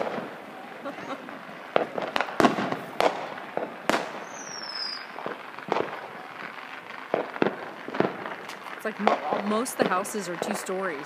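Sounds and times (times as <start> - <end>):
high falling firework whistle: 0.0 - 7.3
fireworks bangs: 0.0 - 11.0.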